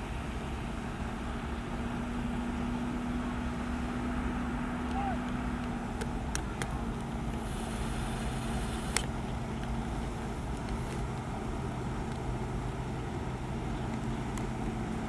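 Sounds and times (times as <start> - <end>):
heavy machinery diesel engine: 6.8 - 13.6.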